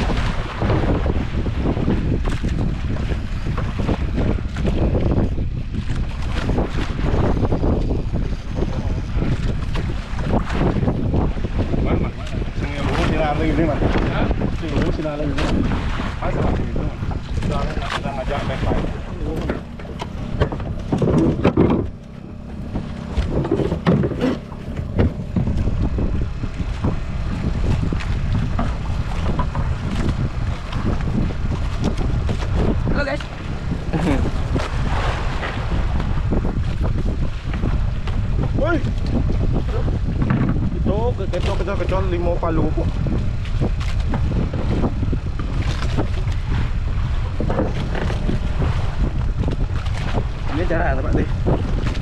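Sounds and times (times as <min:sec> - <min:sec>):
boat engine rumble: 0:00.0 - 0:52.0
wind buffeting microphone: 0:00.0 - 0:52.0
knocks and clatter on deck: 0:19.4 - 0:22.0, 0:23.2 - 0:25.6, 0:40.2 - 0:40.6.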